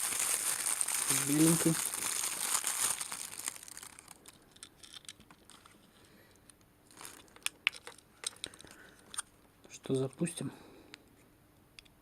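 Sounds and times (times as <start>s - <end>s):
packaging rustle: 0.0s - 5.8s, 6.9s - 8.8s.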